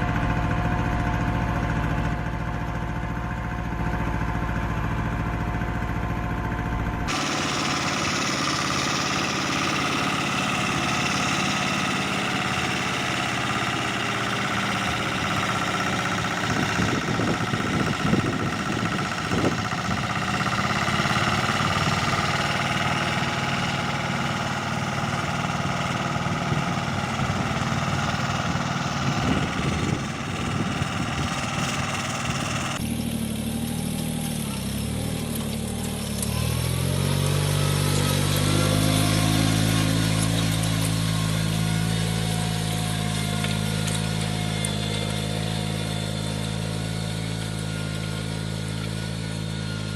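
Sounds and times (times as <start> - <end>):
small tractor engine running: 0.0 - 49.9
small engine revving: 6.4 - 49.9
knocks and rattles: 7.1 - 32.8.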